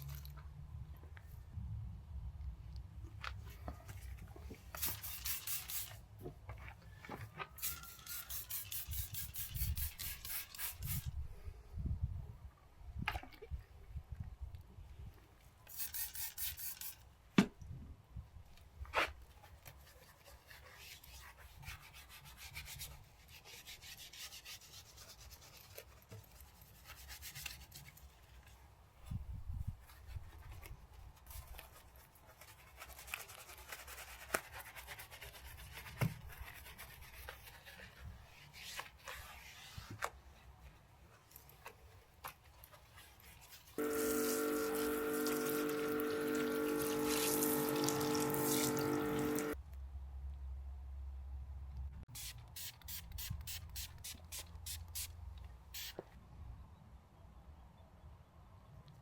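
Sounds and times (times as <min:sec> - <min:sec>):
brush scrubbing car surface: 0:43.5 - 0:49.6.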